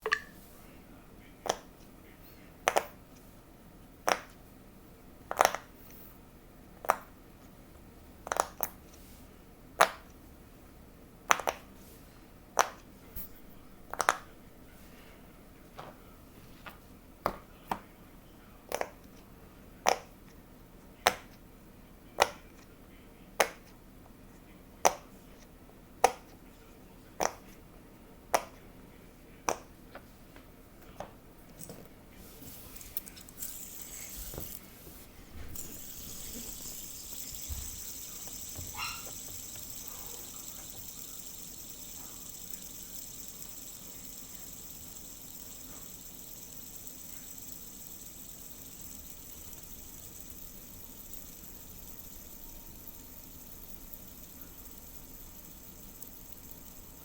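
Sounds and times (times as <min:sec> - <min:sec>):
fidget toy bubbles popping: 0:35.6 - 0:57.0.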